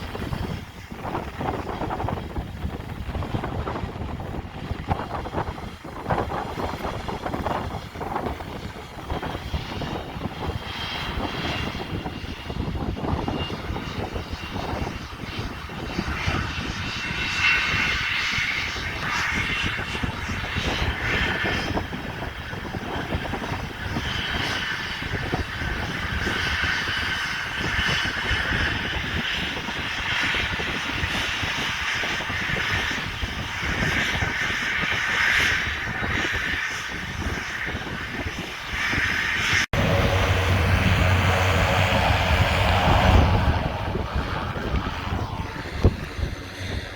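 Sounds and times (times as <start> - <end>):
airplane engine rumbling: 0.0 - 46.9
high engine whine: 37.0 - 46.9.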